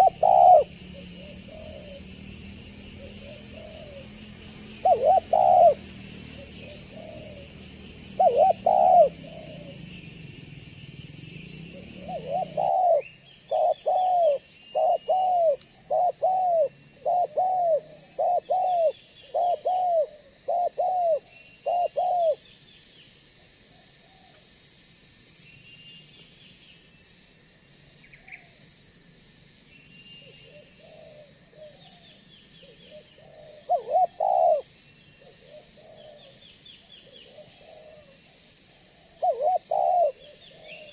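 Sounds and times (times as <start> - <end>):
dove cooing: 0.0 - 10.2, 11.5 - 22.4, 32.6 - 36.4, 37.0 - 40.9
steady high buzz: 0.0 - 15.3
small birds chirping: 0.0 - 23.2, 29.8 - 40.9.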